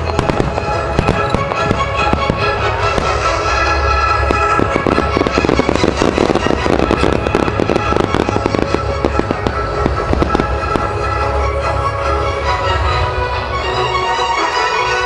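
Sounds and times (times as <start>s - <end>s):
fireworks bursting: 0.0s - 11.9s
show music: 0.0s - 15.0s.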